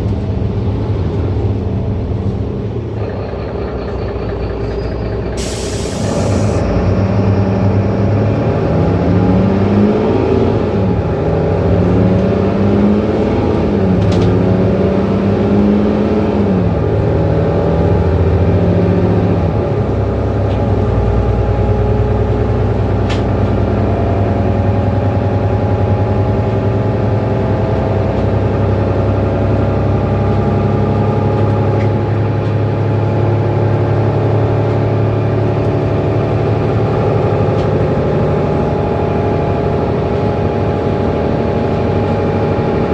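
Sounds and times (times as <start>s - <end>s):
bus engine pulling under load: 0.0s - 42.9s.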